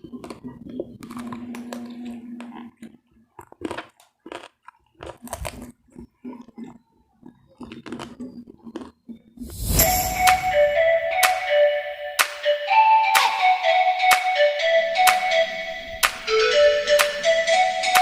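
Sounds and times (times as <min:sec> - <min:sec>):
crunchy chewing and biting: 0:00.0 - 0:09.5.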